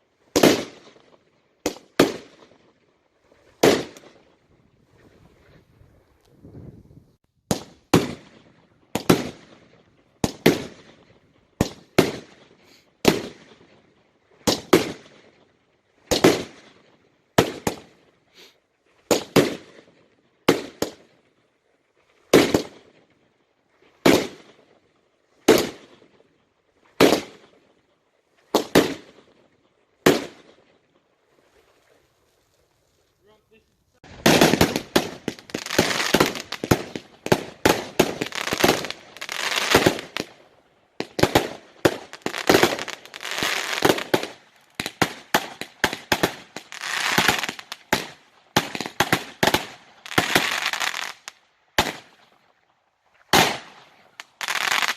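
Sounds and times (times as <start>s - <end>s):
fireworks banging: 34.0s - 40.3s, 41.0s - 51.2s.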